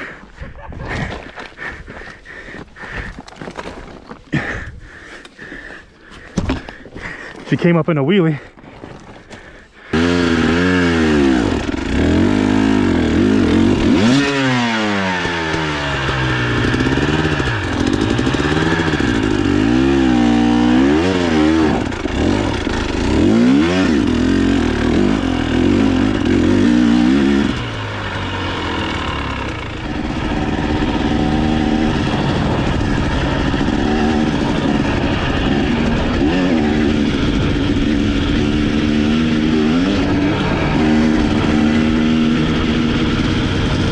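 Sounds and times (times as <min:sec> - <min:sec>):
dirt bike engine revving: 0:09.8 - 0:43.9.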